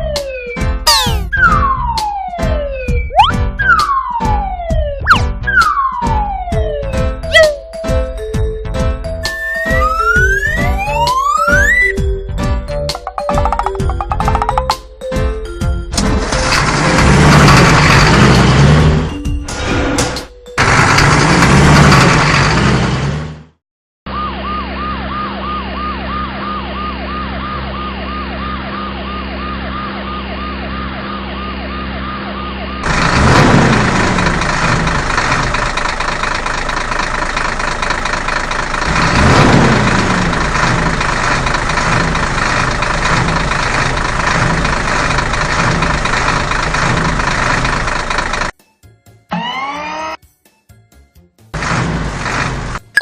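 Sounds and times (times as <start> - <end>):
cartoon siren warbling: 0.0 - 7.8, 9.2 - 12.0, 24.1 - 32.9, 49.3 - 50.2
engine hum: 15.9 - 48.6, 51.5 - 53.0.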